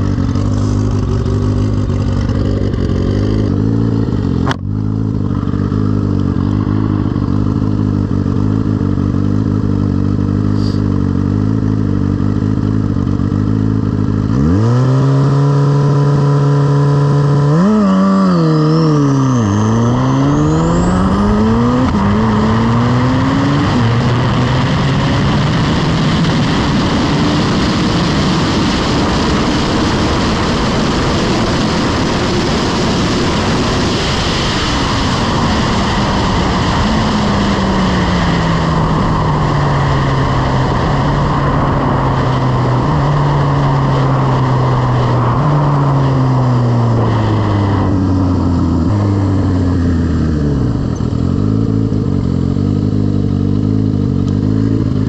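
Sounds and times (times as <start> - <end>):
motorcycle engine downshifting: 0.0 - 55.0
wind noise on microphone: 19.4 - 51.2.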